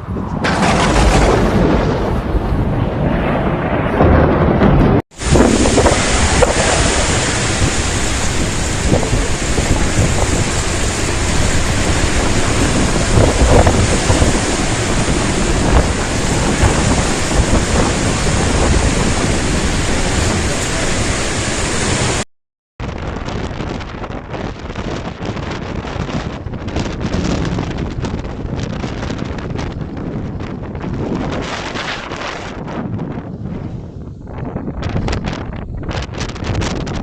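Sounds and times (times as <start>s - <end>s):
strong wind rushing: 0.0s - 22.2s, 22.8s - 37.0s
wind buffeting microphone: 0.0s - 22.2s, 22.8s - 37.0s
heavy rain: 0.4s - 22.2s.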